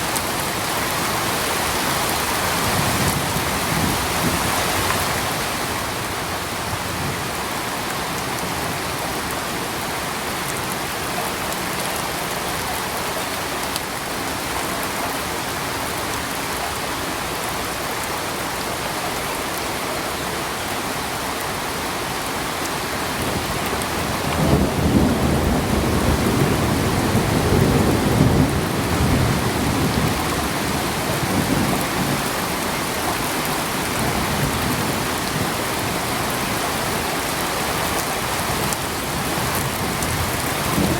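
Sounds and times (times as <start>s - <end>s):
thunder rumbling: 23.2s - 36.5s.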